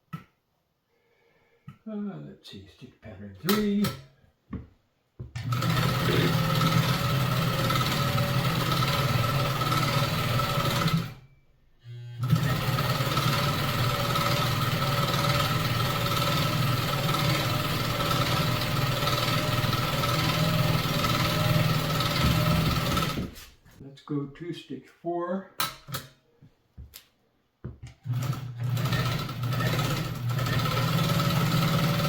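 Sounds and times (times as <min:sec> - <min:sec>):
sewing machine running: 0:05.4 - 0:11.2, 0:12.2 - 0:23.3, 0:28.0 - 0:32.0.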